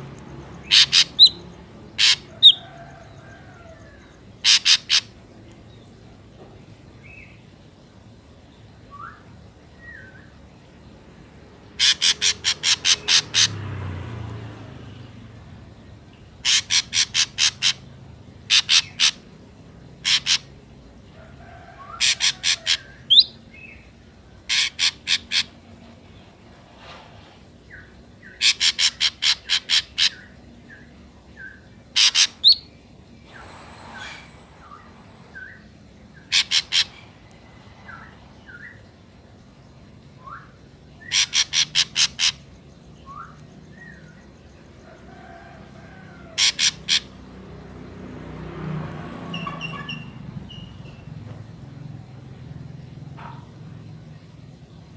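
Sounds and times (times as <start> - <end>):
birds calling harshly: 0.0 - 5.4, 11.6 - 14.2, 16.2 - 20.6, 21.4 - 47.7, 49.1 - 51.2
low noise: 22.4 - 46.4
whistled slurred bird notes: 43.0 - 44.2.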